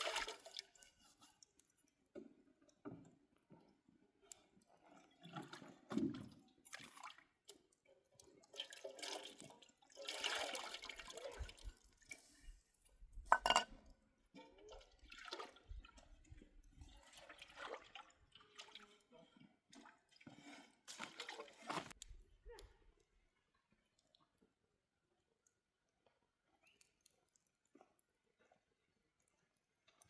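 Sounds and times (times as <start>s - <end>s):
water splashing and pouring: 0.0s - 1.6s, 4.7s - 12.5s, 14.3s - 22.0s.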